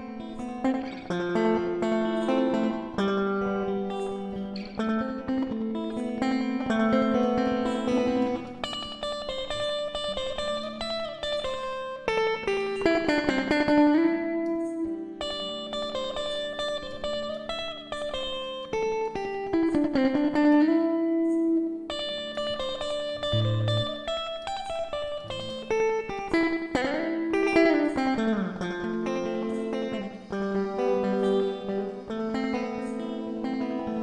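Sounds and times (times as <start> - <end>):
plucked guitar melody: 0.0 - 34.0.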